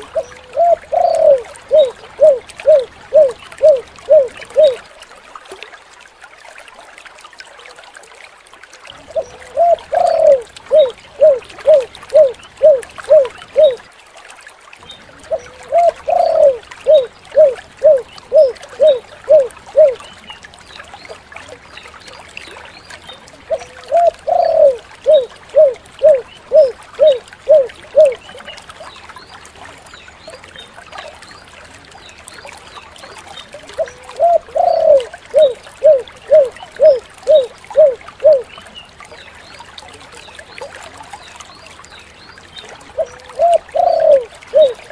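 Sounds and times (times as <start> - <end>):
dove cooing: 0.0 - 4.8, 9.1 - 13.8, 15.3 - 20.0, 23.5 - 28.2, 33.8 - 38.5, 43.0 - 44.9.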